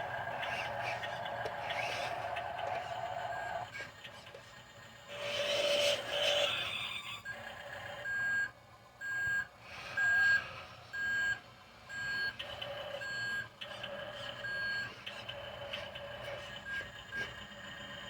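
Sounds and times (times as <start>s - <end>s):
truck engine hum: 0.0s - 18.0s
reversing alarm beeping: 3.0s - 3.7s, 8.0s - 13.5s, 14.4s - 15.0s.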